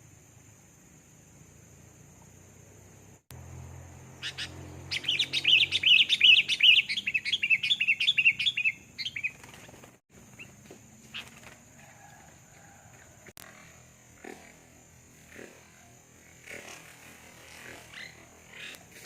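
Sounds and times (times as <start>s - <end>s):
bird chattering call: 4.2s - 9.6s.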